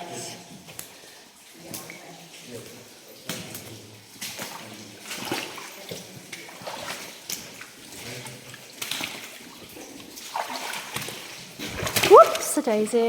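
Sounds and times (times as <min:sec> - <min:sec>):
water splashing and sloshing: 0:00.0 - 0:13.0
footsteps wading through water: 0:03.4 - 0:12.7.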